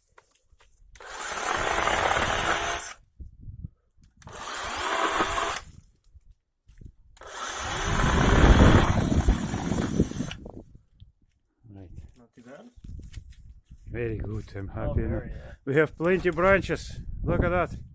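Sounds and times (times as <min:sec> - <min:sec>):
electric chainsaw cutting branches: 0:01.0 - 0:03.0, 0:04.2 - 0:05.7, 0:07.2 - 0:10.4.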